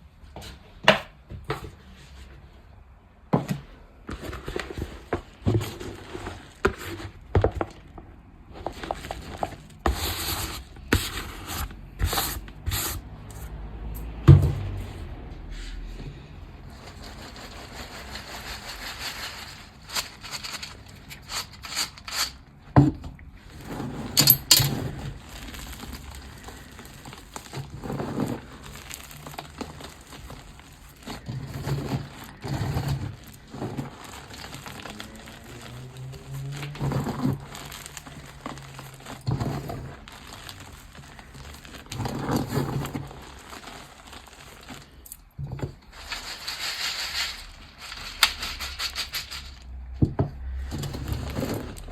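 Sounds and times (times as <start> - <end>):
chalk blocks being crushed: 16.7 - 22.6, 23.5 - 49.7.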